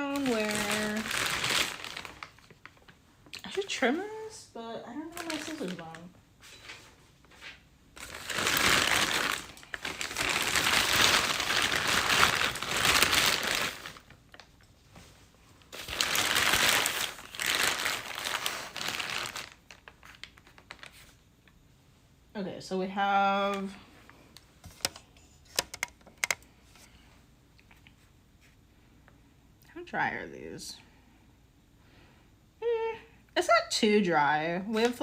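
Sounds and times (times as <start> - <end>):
plastic bag crinkling: 0.0 - 3.8, 5.0 - 6.2, 7.9 - 14.6, 15.6 - 21.2.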